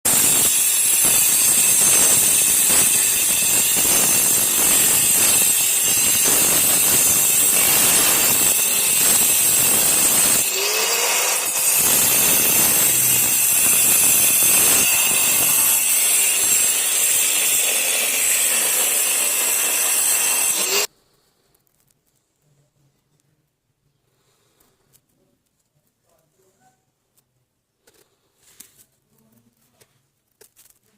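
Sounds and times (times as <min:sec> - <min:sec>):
wall cutter whining and grinding: 0:00.1 - 0:20.9.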